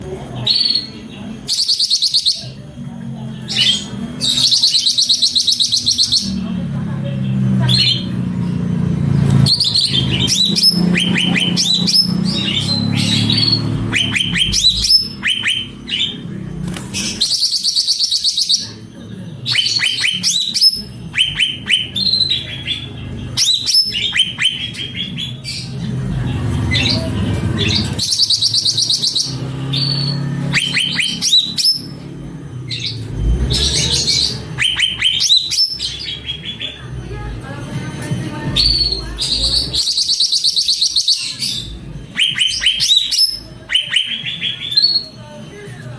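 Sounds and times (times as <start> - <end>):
songbird singing: 0.0 - 45.9
fast high bird trill: 26.6 - 32.0.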